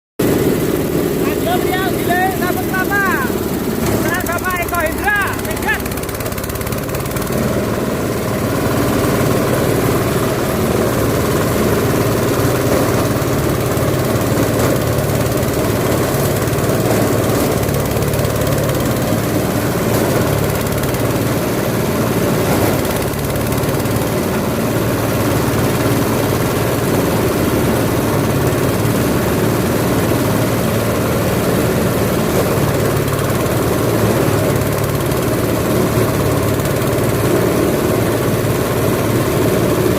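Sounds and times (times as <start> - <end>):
grinding machine running: 0.2 - 39.9.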